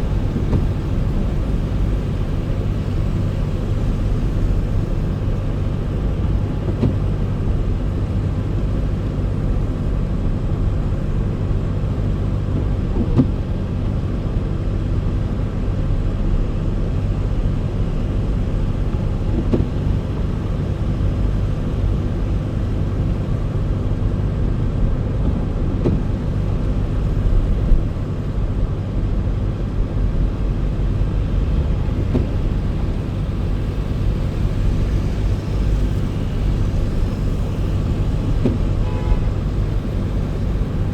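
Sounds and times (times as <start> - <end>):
car driving rumble: 0.0 - 40.9.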